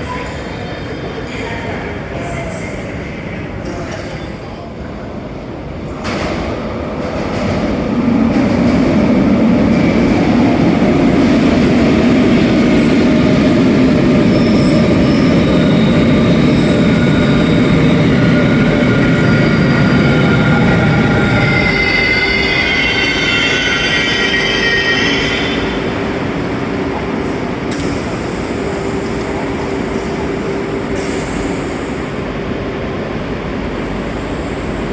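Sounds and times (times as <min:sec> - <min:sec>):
train rumble: 0:00.0 - 0:34.9
wheels and brakes squealing: 0:17.2 - 0:25.9.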